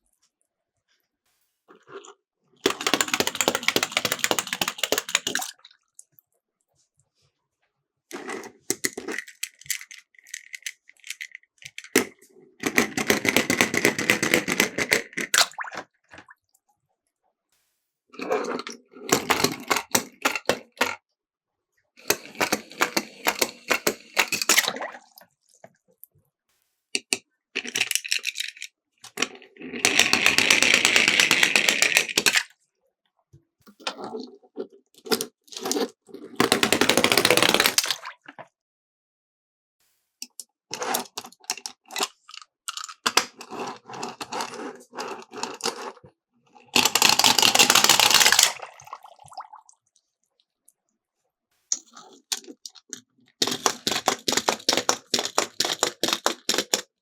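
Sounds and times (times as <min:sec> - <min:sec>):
toy cars rattling down slope: 0:02.6 - 0:05.4, 0:29.8 - 0:32.3, 0:46.7 - 0:48.6, 0:53.4 - 0:56.9.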